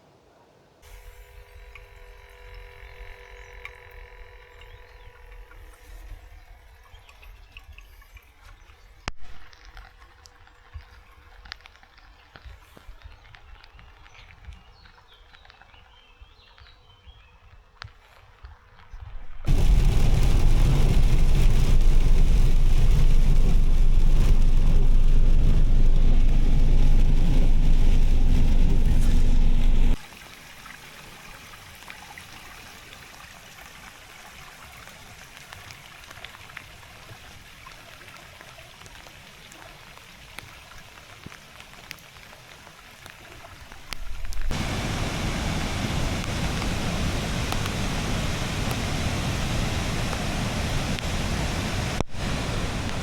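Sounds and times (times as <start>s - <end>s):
water dripping: 1.4s - 16.8s
wind and rain on microphone: 5.3s - 30.0s, 33.2s - 53.0s
rushing water hiss: 19.5s - 38.2s, 38.8s - 53.0s.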